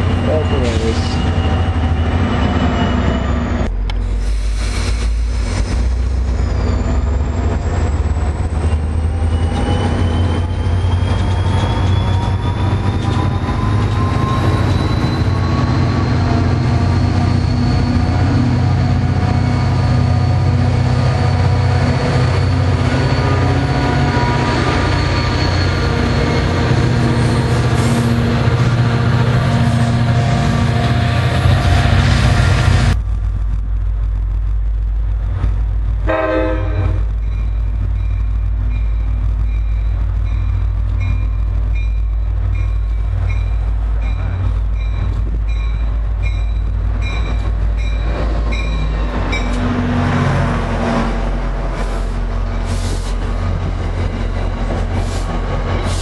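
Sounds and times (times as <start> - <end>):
rising whine: 0.0 - 43.7
diesel train engine hum: 0.0 - 56.0
wheel and rail noise: 0.0 - 56.0.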